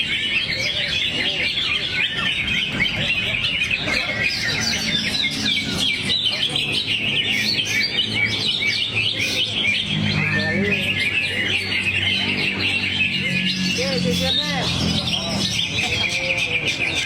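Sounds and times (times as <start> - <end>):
bird singing chirps and trills: 0.0 - 17.0.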